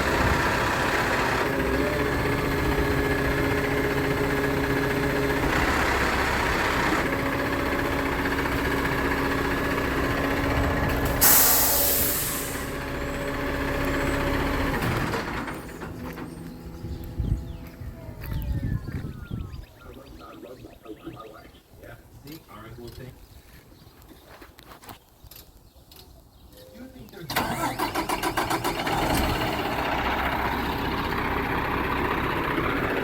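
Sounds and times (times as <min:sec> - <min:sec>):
garbage truck running with whine: 0:00.0 - 0:19.8, 0:27.4 - 0:33.0
air brakes hissing: 0:11.0 - 0:12.9.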